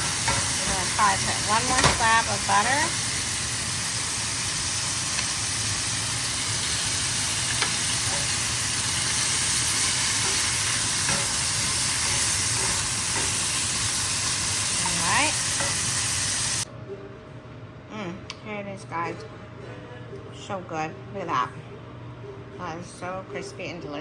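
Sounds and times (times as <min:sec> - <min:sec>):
meat sizzling in butter: 0:00.0 - 0:16.7.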